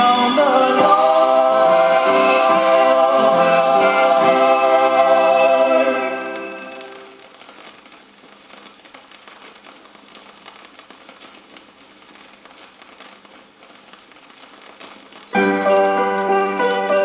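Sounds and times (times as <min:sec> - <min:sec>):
keyboard-led instrumental music: 0:00.0 - 0:07.1, 0:15.4 - 0:17.0
vinyl crackle and hiss: 0:00.0 - 0:17.0.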